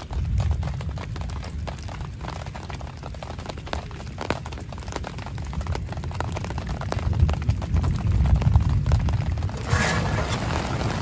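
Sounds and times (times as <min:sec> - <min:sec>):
rain tapping on tent fabric: 0:00.0 - 0:11.0
steady low rumble: 0:00.0 - 0:11.0.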